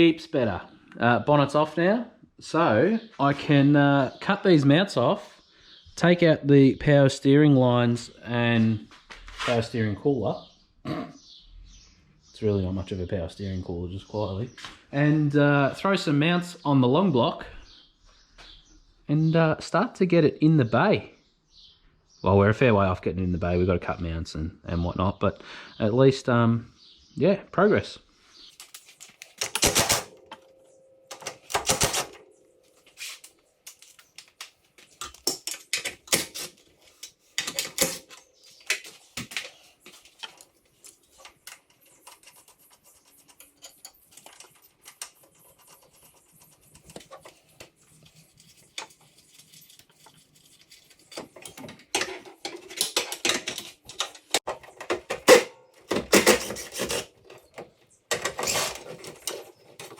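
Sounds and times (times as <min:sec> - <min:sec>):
hand tools clanking on metal: 0:48.7 - 0:59.9.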